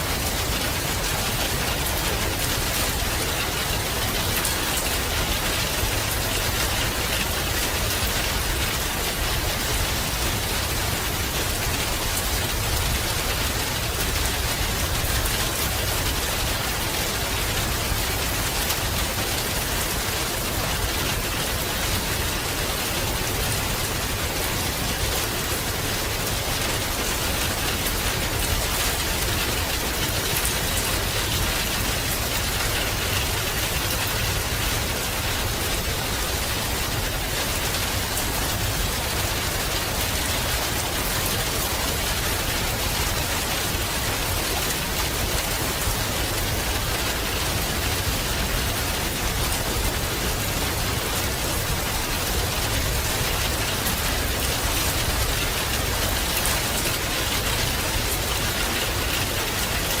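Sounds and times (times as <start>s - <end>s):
rain pattering: 0.0s - 60.0s.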